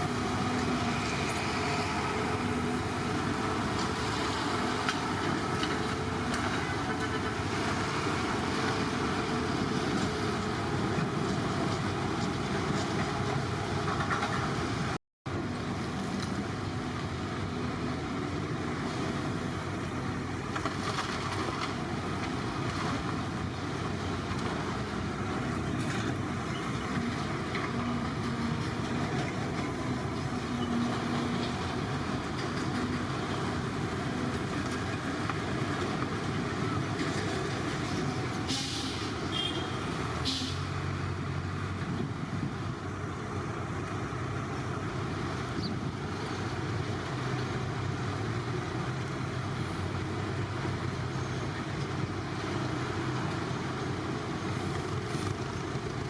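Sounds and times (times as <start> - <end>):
heavy construction machinery running: 0.0 - 56.0.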